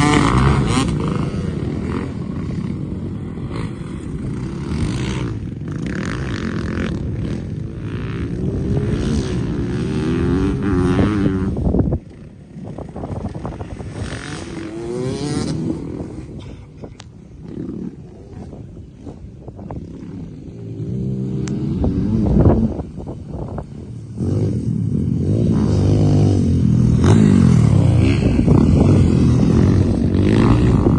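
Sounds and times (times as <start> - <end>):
dirt bike engine revving: 0.0 - 16.5, 17.4 - 30.9
wind rumble on microphone: 0.0 - 30.9.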